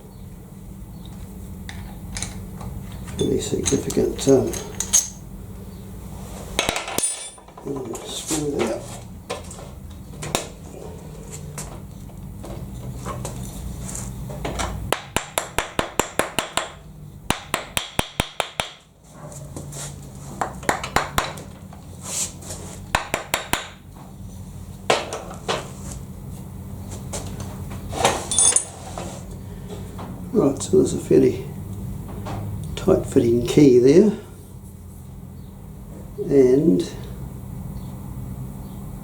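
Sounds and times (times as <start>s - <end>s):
metal parts clinking: 1.7s - 5.2s, 6.6s - 8.0s, 28.3s - 28.8s.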